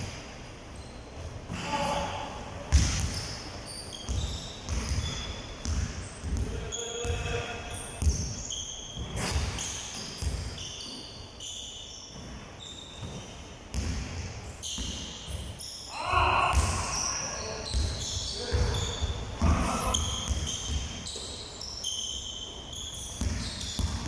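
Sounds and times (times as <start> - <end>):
sneakers squeaking on floor: 0.0 - 24.0
basketballs bouncing on hard floor: 2.7 - 3.4, 4.0 - 11.0, 12.1 - 12.4, 13.0 - 15.6, 16.5 - 17.0, 17.6 - 21.3, 23.1 - 24.0.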